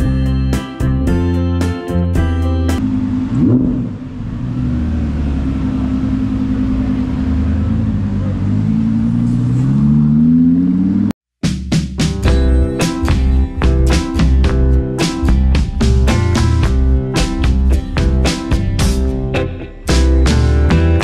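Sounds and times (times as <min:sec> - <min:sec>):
car engine accelerating: 0:02.8 - 0:11.2.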